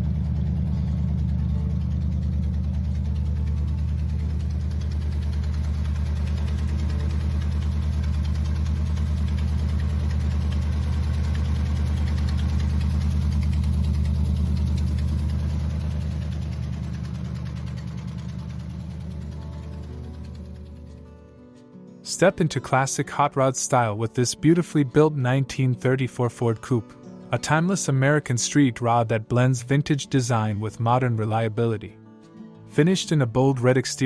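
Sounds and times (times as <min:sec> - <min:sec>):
hot rod engine idling: 0:00.0 - 0:21.1.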